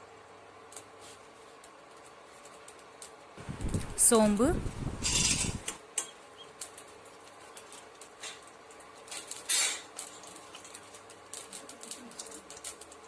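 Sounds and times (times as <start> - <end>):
mustard seeds popping in hot oil: 5.0 - 13.0.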